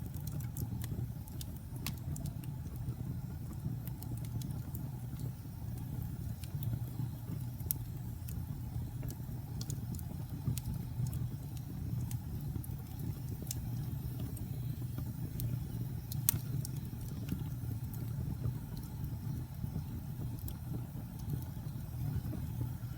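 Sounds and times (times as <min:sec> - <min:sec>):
sharp pops and snaps: 0:00.0 - 0:21.6
wood fire crackling: 0:00.0 - 0:22.9.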